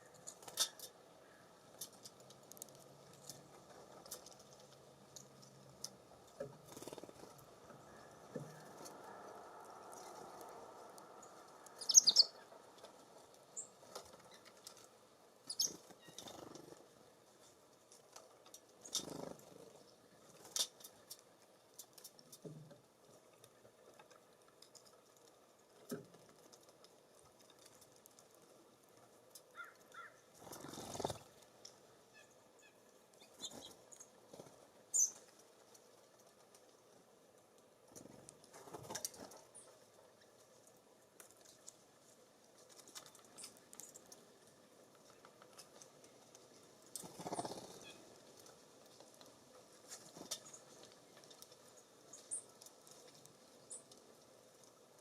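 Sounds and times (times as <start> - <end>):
small birds chirping: 0.0 - 17.6, 18.7 - 21.1, 29.4 - 31.4, 32.0 - 35.3, 42.8 - 44.3, 46.5 - 49.0, 49.8 - 54.1.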